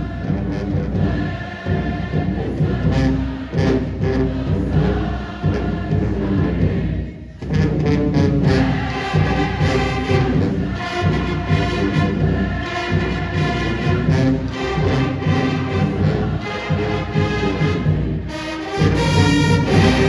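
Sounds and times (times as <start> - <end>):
pep band playing: 8.4 - 20.0.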